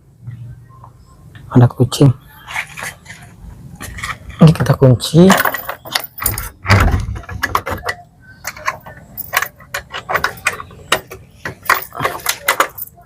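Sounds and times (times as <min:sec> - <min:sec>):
keys rattling: 0:02.4 - 0:13.0
key locking door: 0:05.3 - 0:13.0.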